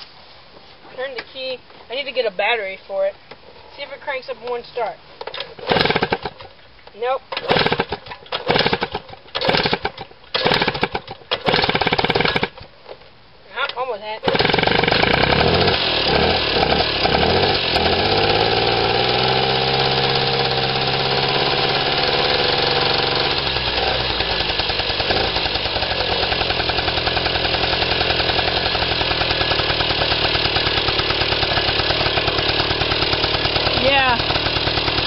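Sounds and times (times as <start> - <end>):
two-stroke moped engine idling: 5.6 - 6.5, 7.4 - 12.6, 14.2 - 35.0.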